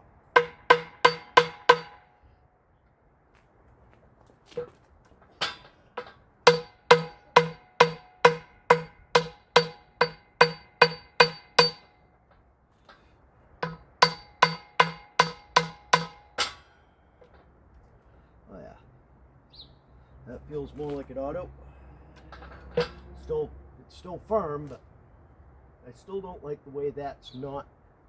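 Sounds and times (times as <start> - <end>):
metal tool striking metal: 0.4 - 2.1, 5.4 - 12.0, 13.6 - 16.8.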